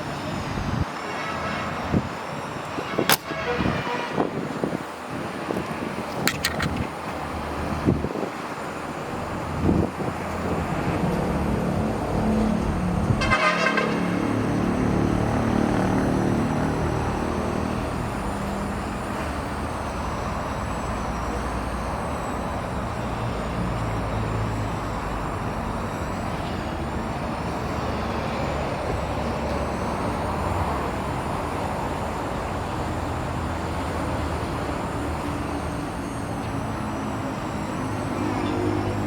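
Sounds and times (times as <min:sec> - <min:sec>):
road noise hiss: 0:00.0 - 0:39.0.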